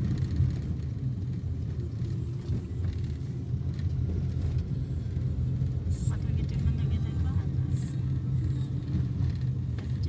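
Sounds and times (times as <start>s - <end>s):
road vehicle engine and road noise: 0.0s - 10.0s.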